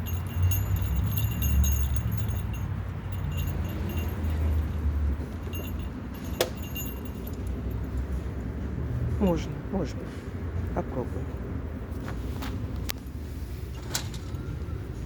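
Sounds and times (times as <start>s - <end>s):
light metallic jingling: 0.0s - 9.5s.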